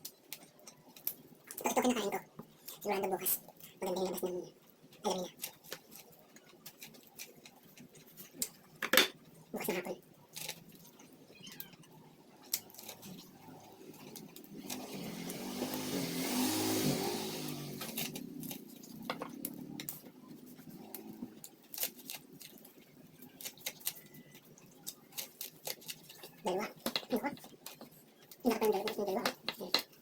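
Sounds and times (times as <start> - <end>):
motor vehicle passing: 13.3 - 21.4.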